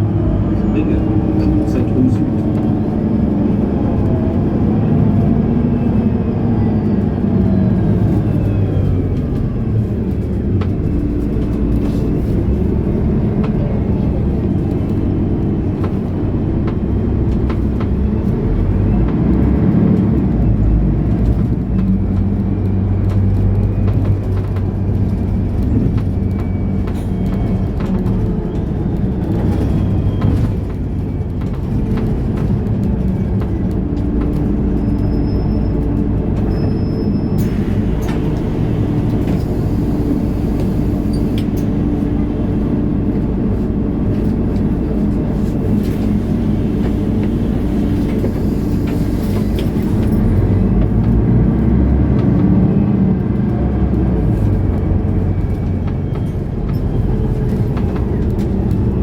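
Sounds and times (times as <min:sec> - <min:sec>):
bus engine running: 0:00.0 - 0:59.0.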